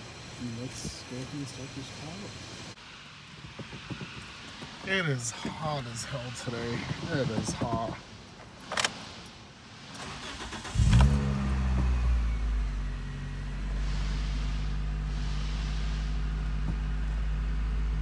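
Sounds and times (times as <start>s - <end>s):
car engine idling: 0.0s - 8.2s, 10.0s - 18.0s
car engine cranking and starting: 8.6s - 9.2s, 9.9s - 18.0s
engine rev flare: 10.0s - 18.0s.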